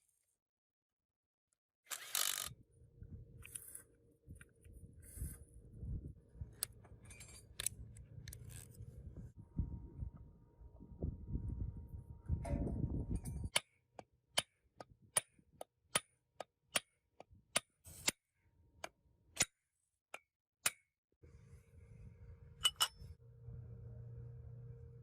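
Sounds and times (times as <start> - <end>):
low steady hum: 2.7 - 13.5, 21.2 - 25.0.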